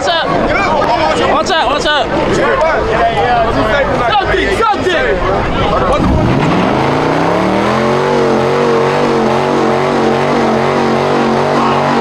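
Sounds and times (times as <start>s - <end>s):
car engine revving: 5.4s - 12.0s.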